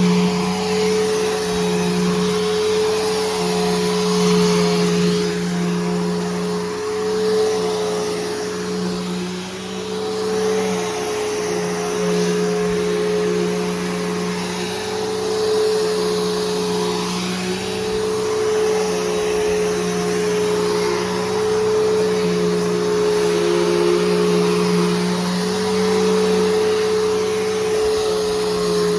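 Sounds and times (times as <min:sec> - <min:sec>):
vacuum cleaner running: 0:00.0 - 0:28.9.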